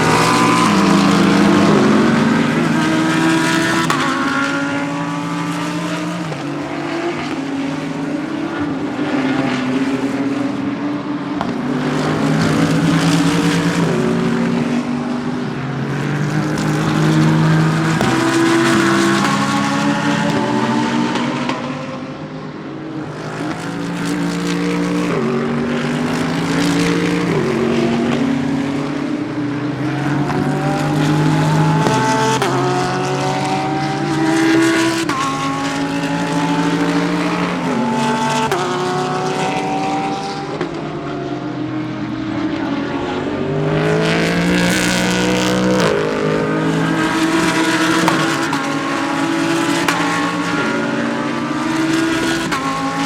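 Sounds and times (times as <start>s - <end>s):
race cars passing at full throttle: 0.0s - 53.0s.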